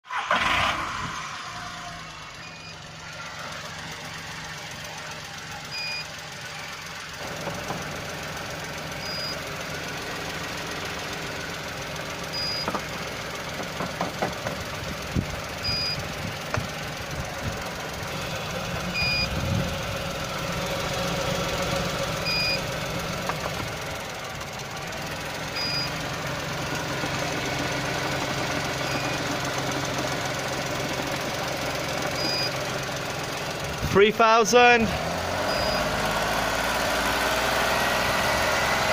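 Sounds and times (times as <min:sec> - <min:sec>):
car engine idling: 0:00.1 - 0:38.9
short electronic beep: 0:02.4 - 0:02.8, 0:15.6 - 0:16.0, 0:32.2 - 0:32.6, 0:35.5 - 0:35.9.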